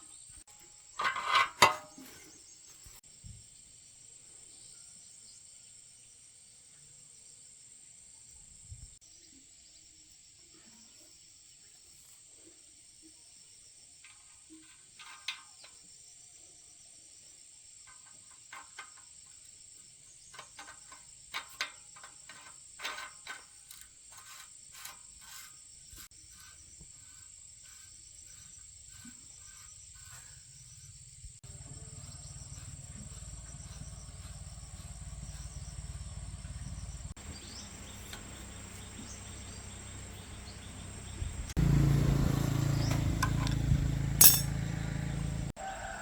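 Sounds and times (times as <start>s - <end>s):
crickets chirring: 12.7s - 44.8s.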